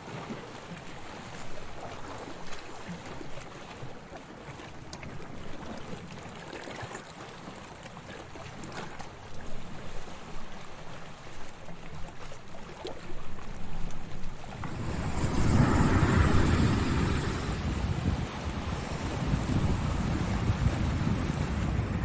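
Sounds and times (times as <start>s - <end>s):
water lapping with splashes: 14.5s - 22.0s
wave breaking and washing in: 14.5s - 22.0s.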